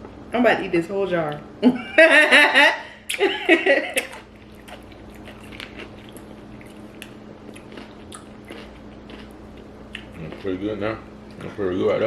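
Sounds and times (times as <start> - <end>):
person chewing with soft crunches: 4.0 - 11.6.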